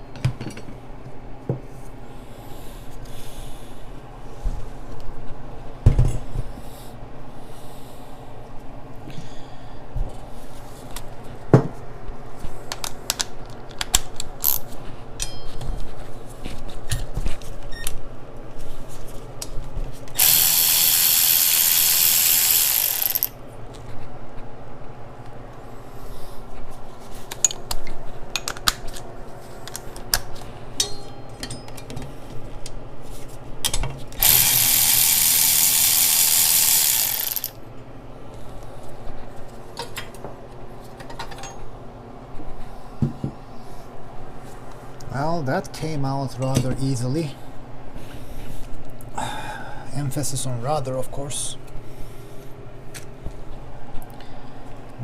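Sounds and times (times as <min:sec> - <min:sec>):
ratchet and metal clicks: 0:14.4 - 0:14.6, 0:20.2 - 0:23.4, 0:34.2 - 0:37.6
power tool bursts: 0:20.2 - 0:23.4, 0:34.2 - 0:37.6.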